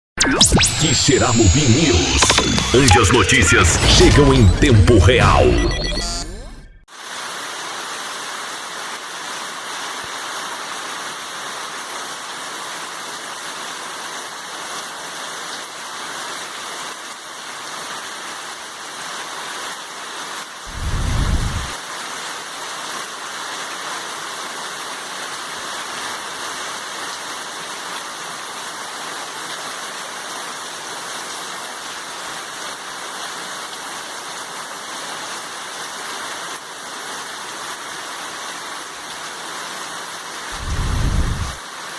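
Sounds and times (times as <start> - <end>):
brief low rumble: 20.7 - 21.8, 40.6 - 41.6.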